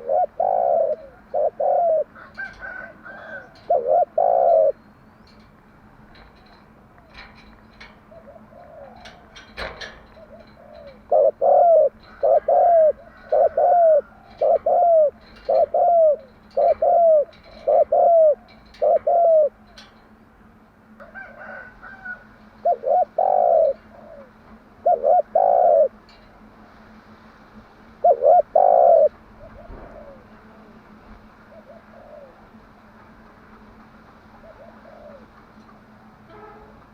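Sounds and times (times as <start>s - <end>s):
dove cooing: 0.0s - 5.4s, 7.1s - 20.0s, 21.0s - 26.2s, 27.9s - 32.8s, 34.2s - 35.4s.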